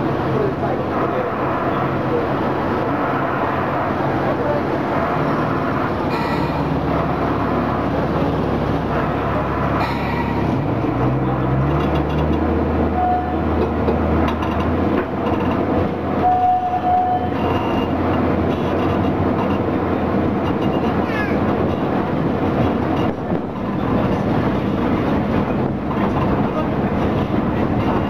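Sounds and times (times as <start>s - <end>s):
diesel engine running: 0.0s - 28.0s
wheels rumbling on rails: 0.0s - 28.0s
brief high tones: 16.2s - 17.9s.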